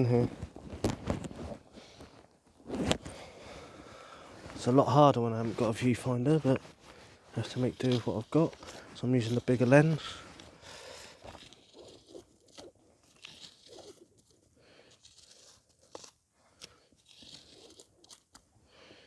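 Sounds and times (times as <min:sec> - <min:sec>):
dry sticks and leaves crunching: 0:05.4 - 0:10.9.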